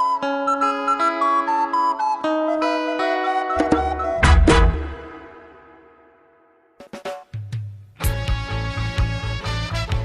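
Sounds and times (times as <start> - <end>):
upbeat song with drums: 3.6 - 5.2, 6.8 - 10.0.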